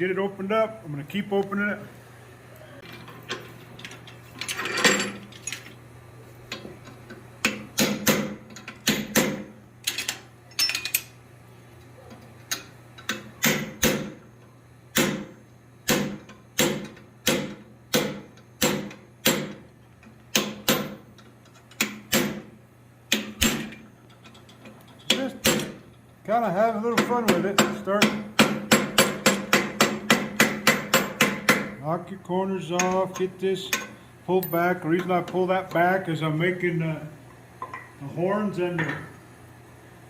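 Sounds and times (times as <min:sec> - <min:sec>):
hammer striking steel on anvil: 0:26.9 - 0:31.8.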